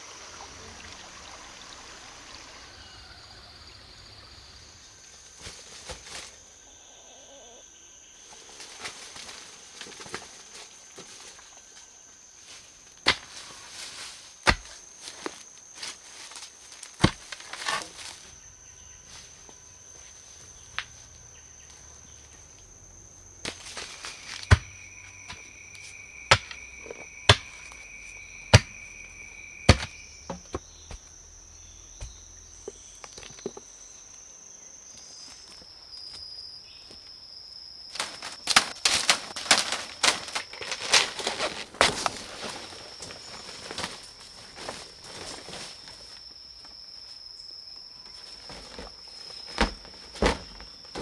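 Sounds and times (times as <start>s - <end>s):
insects trilling: 0.0s - 51.0s
lower insect trill: 0.0s - 51.0s
sharp wooden knocks: 26.3s - 27.7s, 28.5s - 28.8s, 29.7s - 31.0s.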